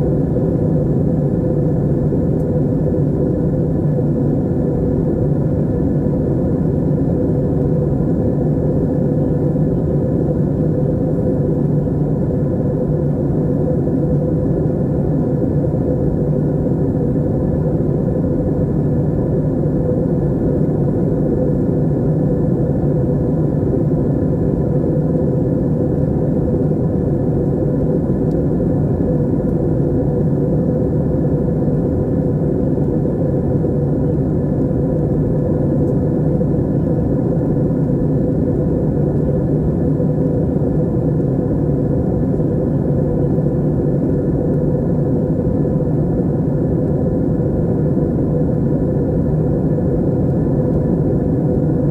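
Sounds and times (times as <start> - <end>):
aircraft cabin engine drone: 0.0 - 51.9
faint steady hum: 0.0 - 51.9.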